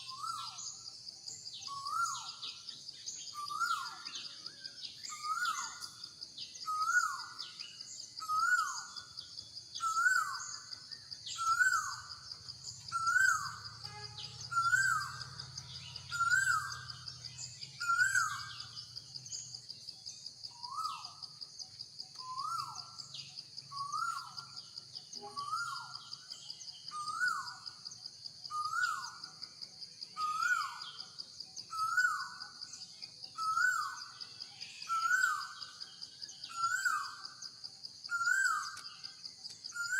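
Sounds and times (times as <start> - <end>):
high drone of insects: 0.0 - 39.9
bird calling: 11.3 - 18.9.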